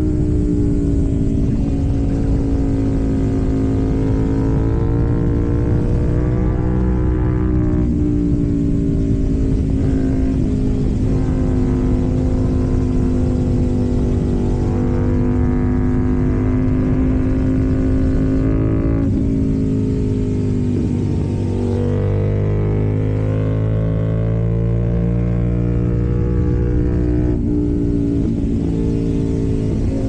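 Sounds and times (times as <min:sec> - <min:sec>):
motorcycle engine at steady revs: 0:00.0 - 0:30.0.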